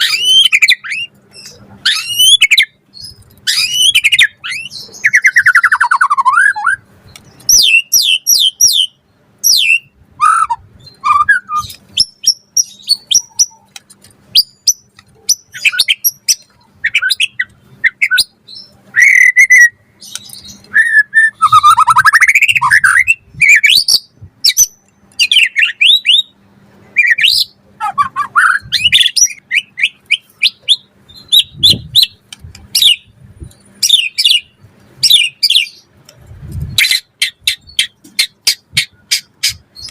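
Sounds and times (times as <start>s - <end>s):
bird singing whistled notes: 0.0s - 6.8s, 7.4s - 13.7s, 14.4s - 26.4s, 27.0s - 33.1s, 33.8s - 35.9s.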